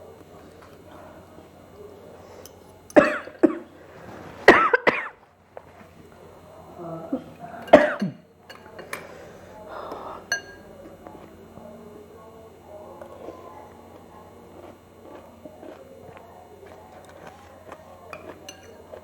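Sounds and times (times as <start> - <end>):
person coughing: 3.0 - 3.7, 4.5 - 5.2, 7.6 - 8.3.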